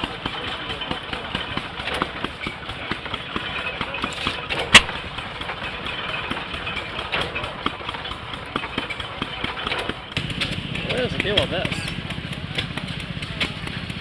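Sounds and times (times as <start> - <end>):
stationary engines knocking: 0.0 - 14.0
sharp crack: 4.3 - 5.4.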